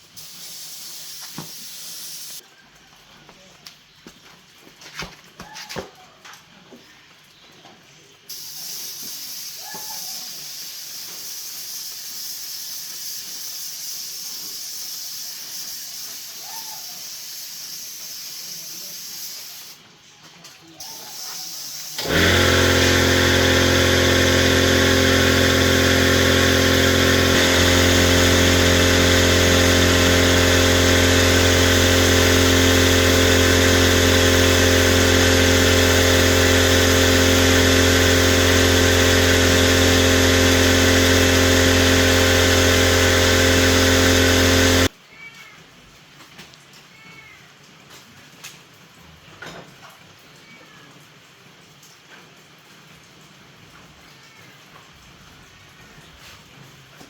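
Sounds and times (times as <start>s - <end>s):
steady hiss: 0.0s - 2.4s, 8.3s - 19.8s
electric motor machine running: 21.1s - 44.9s.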